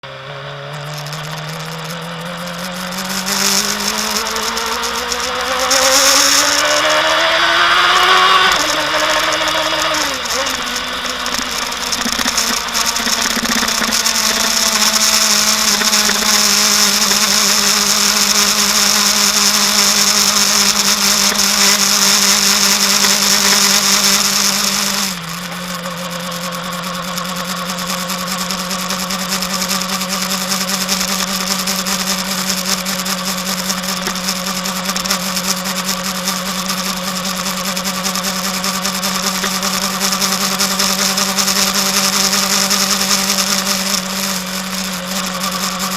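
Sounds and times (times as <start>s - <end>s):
motorcycle engine running: 0.0s - 45.9s
high hiss: 0.6s - 45.9s.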